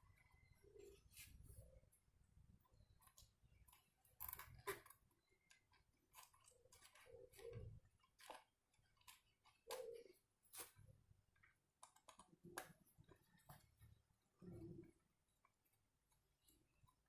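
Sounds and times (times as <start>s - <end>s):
small parts clicking and tapping: 2.6s - 13.9s.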